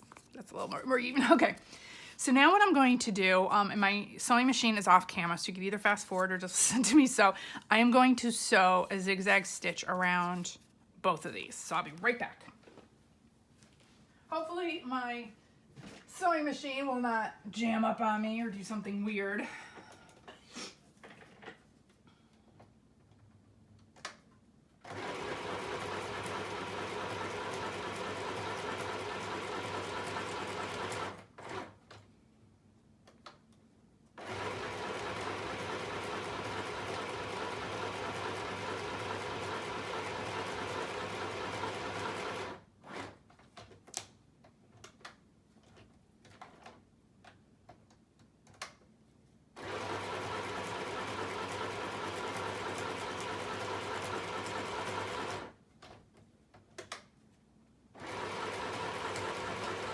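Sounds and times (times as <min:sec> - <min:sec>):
sewing machine running: 0:24.8 - 0:31.7, 0:34.2 - 0:43.2, 0:49.6 - 0:55.5, 0:58.0 - 0:59.9.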